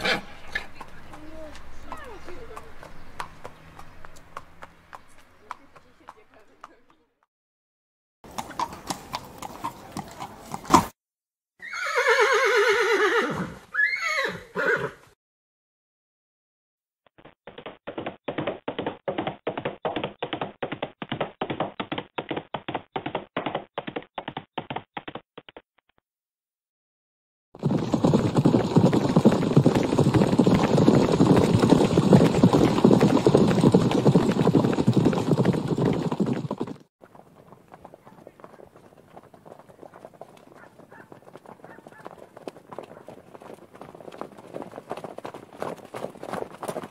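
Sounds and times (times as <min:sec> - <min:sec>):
horse hooves clip-clopping: 0:00.0 - 0:07.0, 0:08.3 - 0:10.9, 0:17.2 - 0:25.6, 0:27.6 - 0:46.9
horse whinnying: 0:11.6 - 0:15.0.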